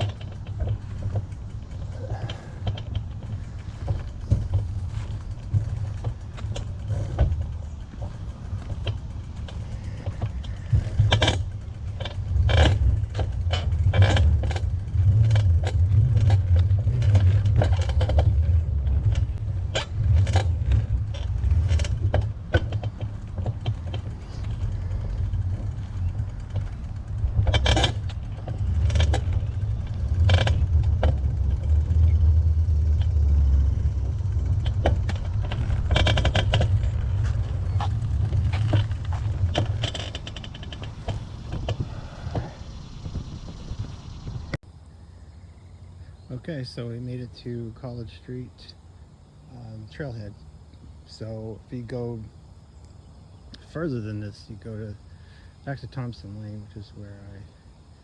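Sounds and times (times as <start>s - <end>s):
wind rumble on microphone: 0.0s - 44.6s
bicycle clicking and rattling: 0.0s - 58.0s.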